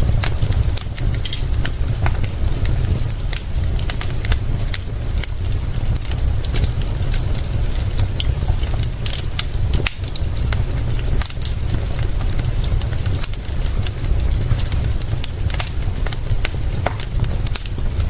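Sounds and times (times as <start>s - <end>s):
rain rumbling: 0.0s - 18.0s
wood fire crackling: 0.0s - 18.0s.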